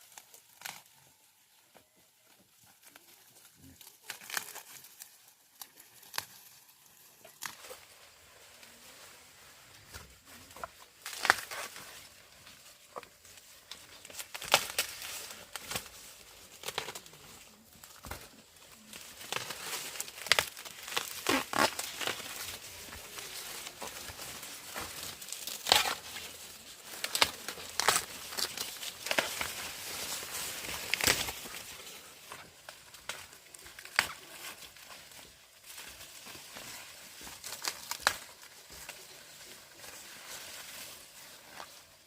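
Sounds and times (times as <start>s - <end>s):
dry corn plants rustling: 0.0s - 42.0s
corn ears snapping off stalks: 9.9s - 11.9s, 13.7s - 18.3s, 18.9s - 34.9s, 35.7s - 39.3s.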